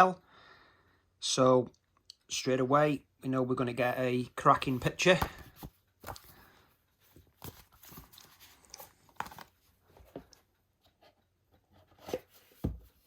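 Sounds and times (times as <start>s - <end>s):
paper pages rustling: 4.6s - 10.4s.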